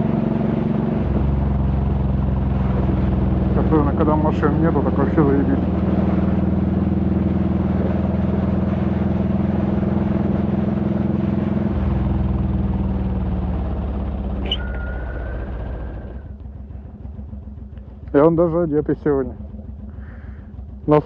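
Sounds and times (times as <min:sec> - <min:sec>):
motorcycle engine running: 0:00.0 - 0:21.0
thin high whine: 0:14.4 - 0:16.3.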